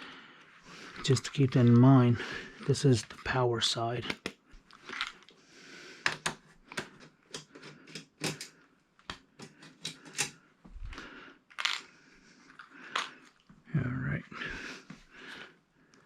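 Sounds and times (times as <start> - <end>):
small hard parts clicking: 6.0 - 10.4.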